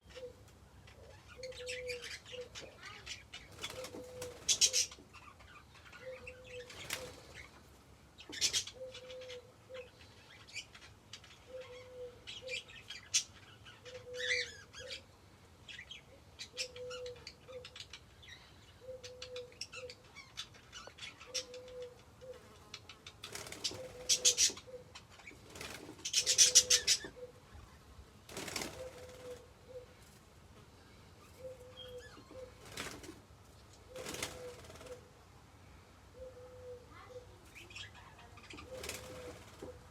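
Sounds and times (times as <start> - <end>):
dove cooing: 0.0 - 5.0, 6.0 - 7.5, 8.3 - 9.9, 11.5 - 12.8, 13.8 - 15.0, 16.5 - 17.8, 18.8 - 20.0, 21.1 - 22.6, 23.3 - 27.6, 28.3 - 30.2, 31.3 - 33.1, 33.9 - 35.1, 36.2 - 37.9, 38.5 - 39.9
birds fluttering wings: 3.4 - 5.0, 6.6 - 7.5, 23.2 - 24.6, 25.3 - 27.0, 28.3 - 30.3, 32.5 - 35.1, 38.6 - 39.9.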